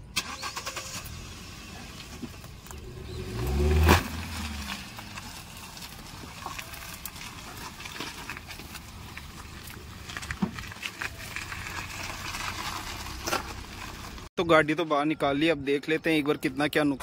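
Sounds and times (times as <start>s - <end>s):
car engine revving: 0.2s - 7.4s.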